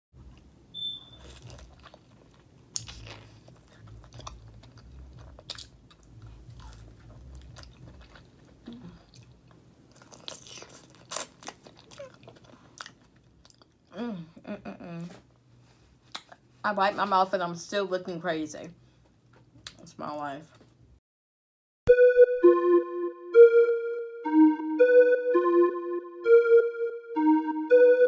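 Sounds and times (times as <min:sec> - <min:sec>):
close chewing and mouth smacks: 0:01.1 - 0:13.9, 0:16.0 - 0:16.5.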